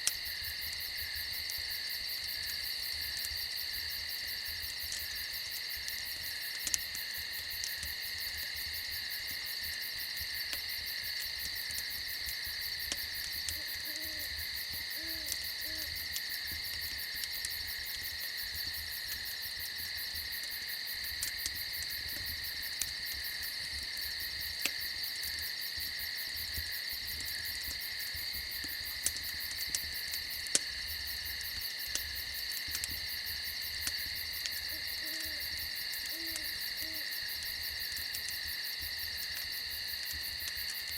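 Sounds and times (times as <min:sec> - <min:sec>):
campfire popping: 0:00.0 - 0:40.9
crickets trilling: 0:00.0 - 0:40.9
owl hooting: 0:13.6 - 0:14.3, 0:15.0 - 0:15.9, 0:34.7 - 0:35.4, 0:36.1 - 0:37.1.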